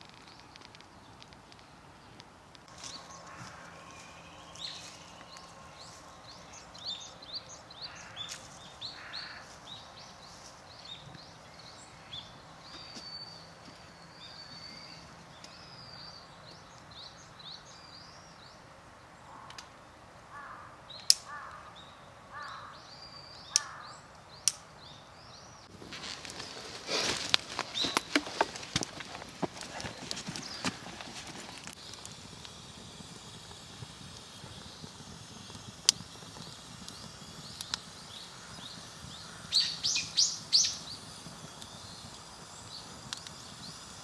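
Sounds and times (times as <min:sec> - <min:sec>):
small birds chirping: 0:00.2 - 0:18.7, 0:20.9 - 0:44.0
crow cawing: 0:03.2 - 0:03.9, 0:07.9 - 0:08.3, 0:08.9 - 0:09.5, 0:20.3 - 0:22.8, 0:23.6 - 0:23.9
sharp cracks: 0:25.7 - 0:41.0.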